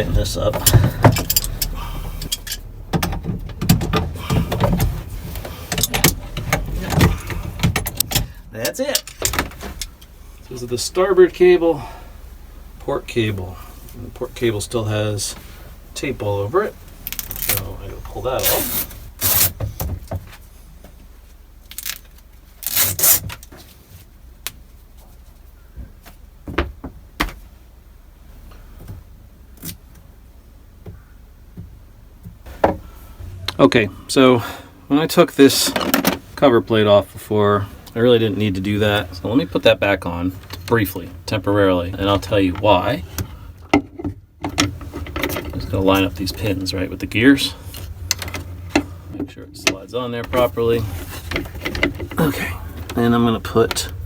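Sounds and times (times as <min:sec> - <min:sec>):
tape ripping: 0:21.7 - 0:23.4.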